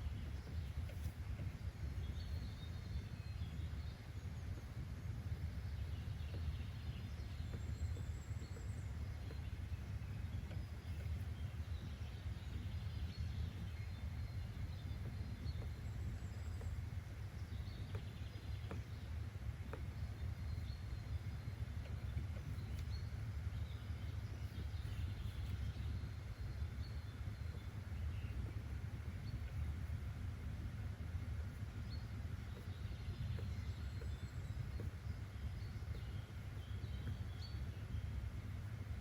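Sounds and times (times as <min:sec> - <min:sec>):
low background rumble: 0:00.0 - 0:39.0.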